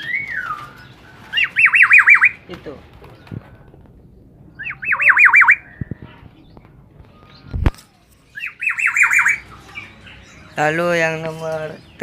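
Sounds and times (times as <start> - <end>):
bird warbling call: 1.3 - 2.4, 4.6 - 5.8, 8.4 - 9.9.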